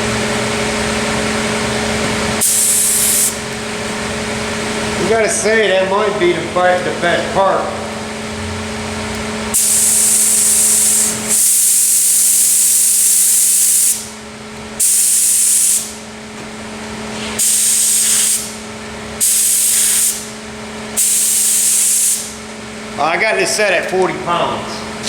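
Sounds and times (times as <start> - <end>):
steady low hum: 0.0 - 25.0
paint spray gun hissing: 2.4 - 3.4, 9.5 - 14.1, 14.8 - 15.9, 17.4 - 18.6, 19.2 - 20.3, 21.0 - 22.3.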